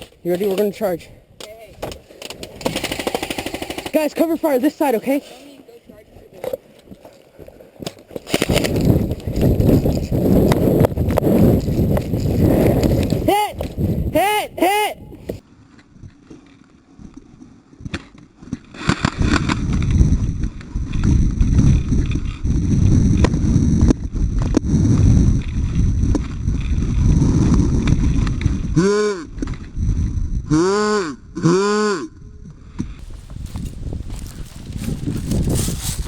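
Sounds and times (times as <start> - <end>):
wind buffeting microphone: 8.2 - 14.2, 19.0 - 30.5, 32.8 - 36.0
person shouting: 13.2 - 15.3.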